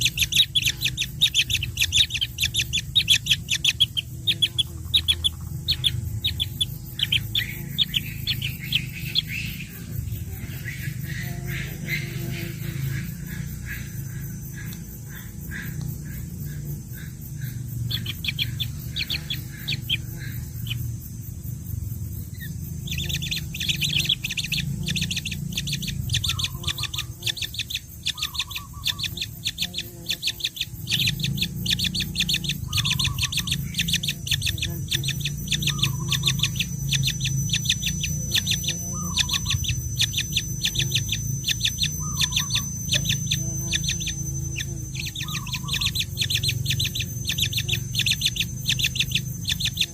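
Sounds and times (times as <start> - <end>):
baby birds begging chirps: 0.0 - 49.9.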